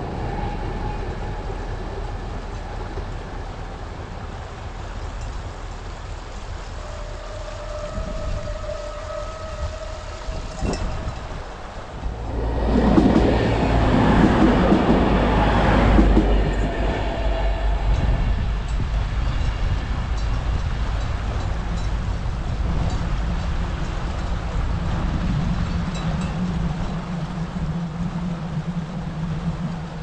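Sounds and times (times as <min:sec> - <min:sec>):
train passing: 0:00.0 - 0:30.0
steady low drone: 0:11.7 - 0:30.0.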